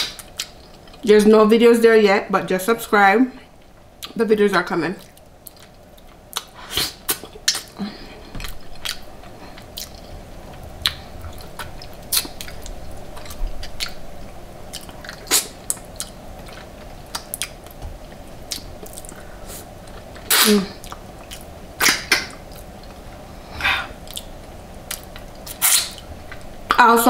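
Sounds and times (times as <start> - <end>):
low background hum: 0.0 - 27.0
chewing and biting food: 8.4 - 23.0.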